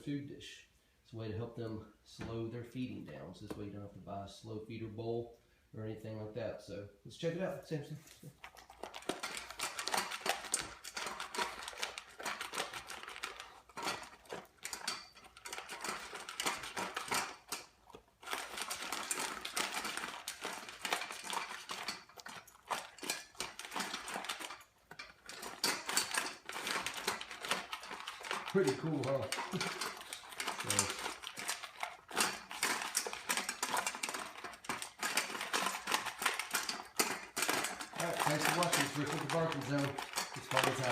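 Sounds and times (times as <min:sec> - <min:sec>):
dog eating from bowl: 0:08.1 - 0:40.9
ice clattering against bowl: 0:08.4 - 0:40.9.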